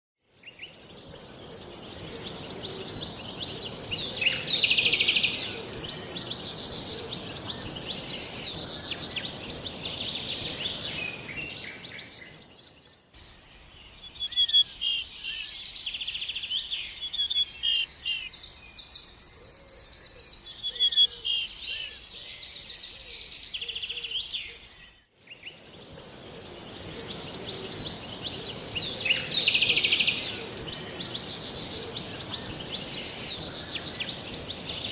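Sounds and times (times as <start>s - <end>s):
steady high hiss: 0.4s - 13.9s, 25.2s - 34.9s
songbirds chirping and singing: 0.4s - 34.9s.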